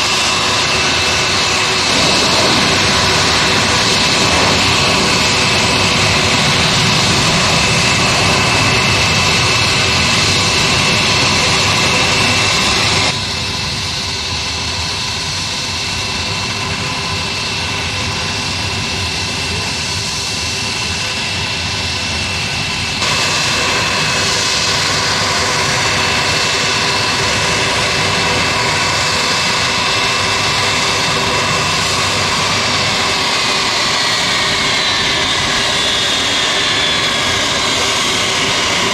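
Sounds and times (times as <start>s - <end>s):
aircraft turbine engines running: 0.0s - 38.9s
high turbine whine: 0.0s - 38.9s.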